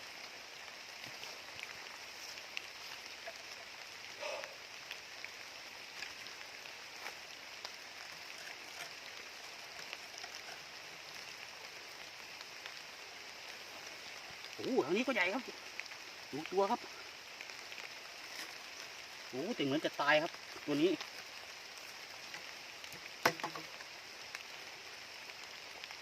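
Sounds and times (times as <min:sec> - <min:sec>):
dull knock: 0:23.2 - 0:23.7.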